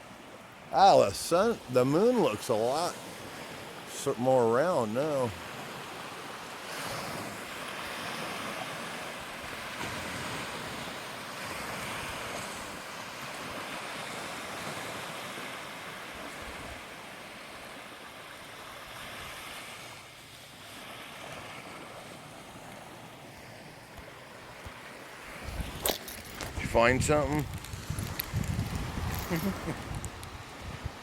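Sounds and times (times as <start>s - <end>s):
ocean waves washing on beach: 0.0s - 31.0s
wind on microphone: 25.3s - 31.0s.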